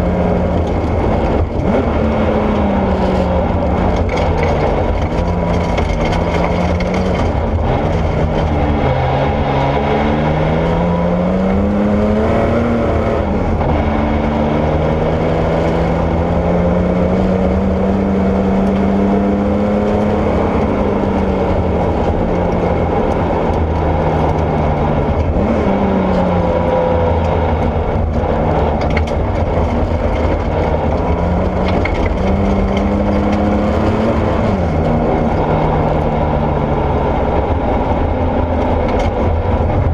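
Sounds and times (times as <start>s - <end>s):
rally car engine accelerating: 0.0s - 39.9s
steady loud rush of noise: 0.0s - 39.9s.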